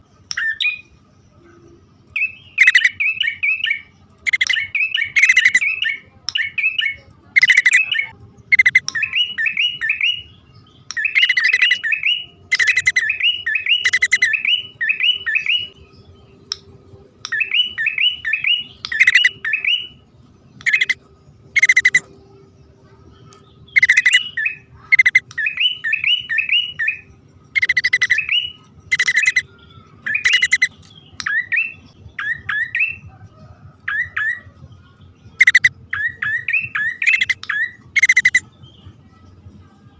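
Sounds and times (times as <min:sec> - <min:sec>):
bird rising chirp calls: 0:02.1 - 0:10.4, 0:11.0 - 0:15.8, 0:17.3 - 0:20.0, 0:20.6 - 0:22.1, 0:23.6 - 0:27.0, 0:27.6 - 0:33.0, 0:35.4 - 0:38.4.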